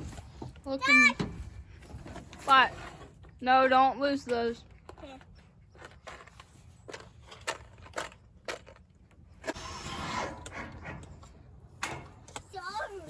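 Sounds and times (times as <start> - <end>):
rasping scraping noise: 9.4 - 11.5.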